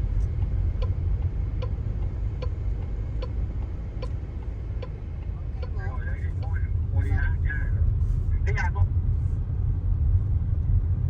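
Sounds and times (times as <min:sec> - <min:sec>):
turn signal ticking: 0:00.0 - 0:07.3
car rumble from inside cabin: 0:00.0 - 0:11.0.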